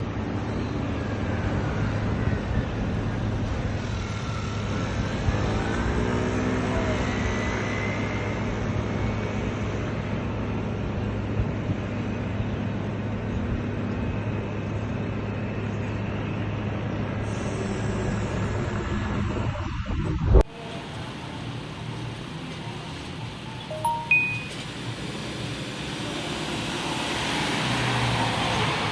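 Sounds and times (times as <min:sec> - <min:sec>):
passing vehicles rumbling: 0:00.0 - 0:28.9
engine rising in pitch: 0:20.5 - 0:28.9.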